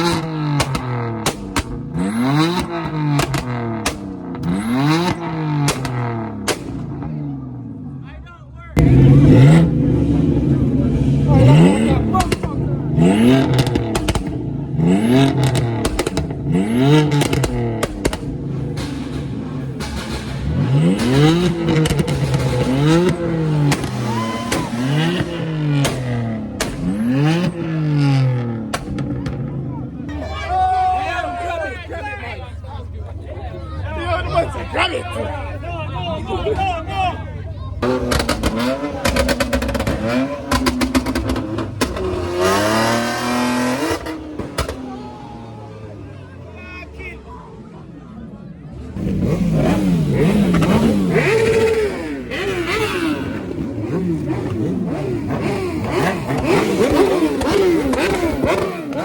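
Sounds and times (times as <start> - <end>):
sharp cracks: 0.0 - 7.0, 15.3 - 27.6, 28.7 - 29.5, 37.8 - 45.0
exhaust pops: 0.0 - 7.7, 8.8 - 30.2, 37.7 - 46.1, 48.9 - 59.0
car engine revving: 0.0 - 59.0.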